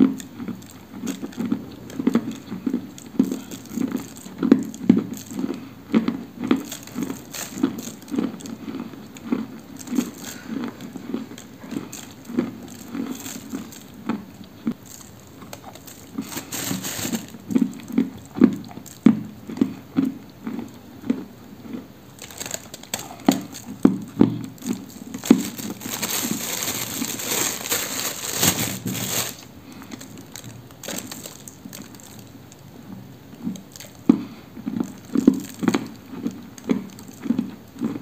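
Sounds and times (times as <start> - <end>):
chewing crunches: 0.0 - 38.0
gritty rustle: 24.7 - 29.4.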